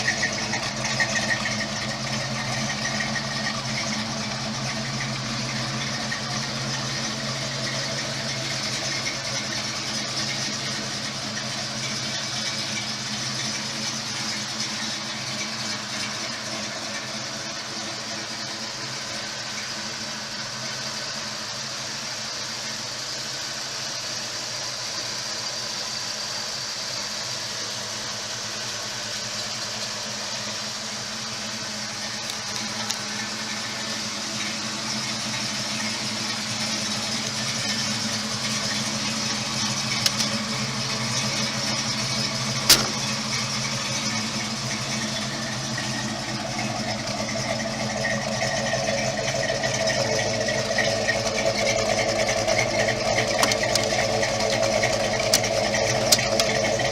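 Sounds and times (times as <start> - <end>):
car engine idling: 0.0 - 56.9
sharp click: 42.7 - 43.2.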